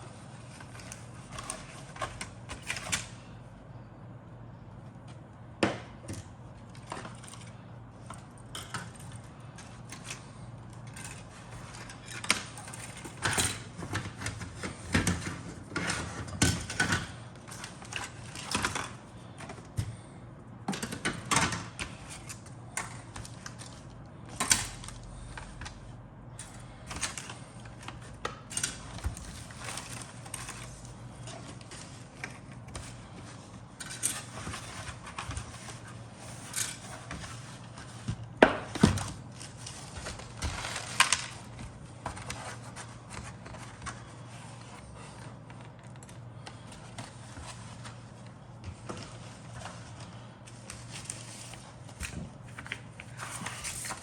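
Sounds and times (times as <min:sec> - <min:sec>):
plastic parts and bags handled: 0:26.4 - 0:54.0.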